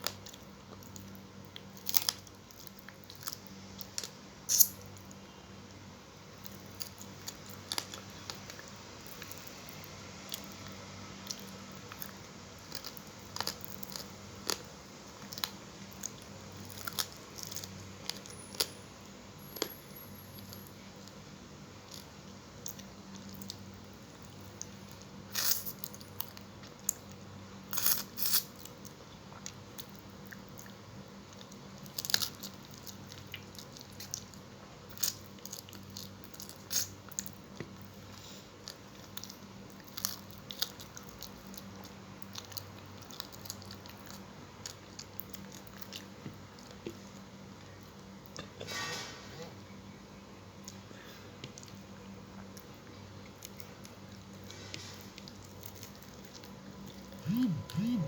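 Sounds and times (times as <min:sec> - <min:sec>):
wet chewing and crunching: 0:00.0 - 0:05.2, 0:06.3 - 0:18.8, 0:21.8 - 0:48.1, 0:50.6 - 0:58.0
faint low hum: 0:49.3 - 0:58.0.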